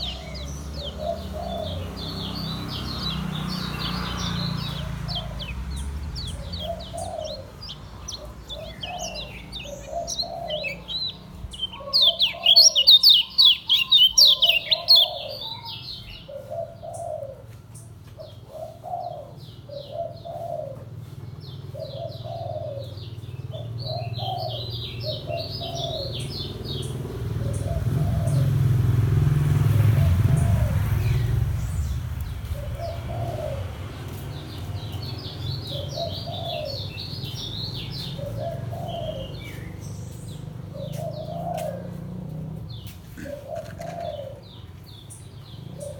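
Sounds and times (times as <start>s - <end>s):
dove cooing: 0.0s - 2.9s, 4.1s - 45.9s
bird twittering trills: 0.0s - 17.2s, 21.4s - 28.9s, 29.8s - 42.0s.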